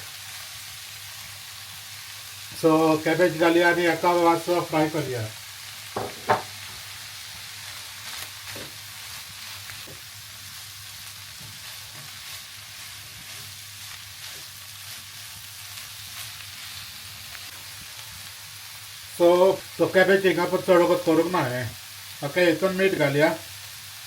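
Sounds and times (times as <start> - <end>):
vegetables and chicken sizzling in oil: 0.0 - 24.0.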